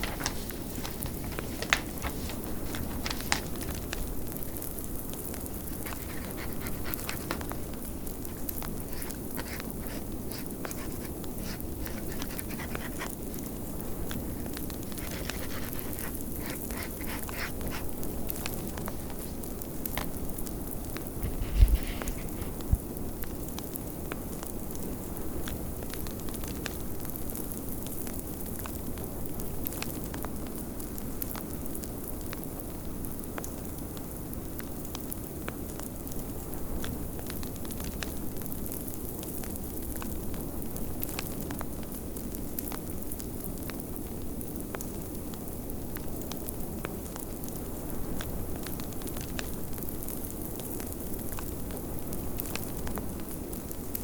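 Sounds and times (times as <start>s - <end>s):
wood fire crackling: 0.0s - 20.7s.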